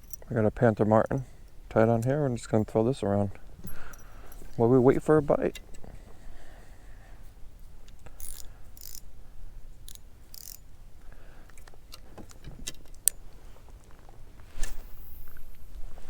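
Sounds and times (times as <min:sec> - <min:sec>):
reel gears clicking: 0:08.2 - 0:09.0, 0:09.9 - 0:10.6
fishing line hissing bursts: 0:14.5 - 0:15.5.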